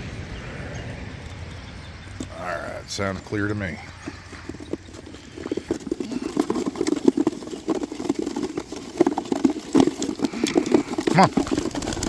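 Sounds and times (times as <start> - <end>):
pigeon wings fluttering: 4.0 - 12.0.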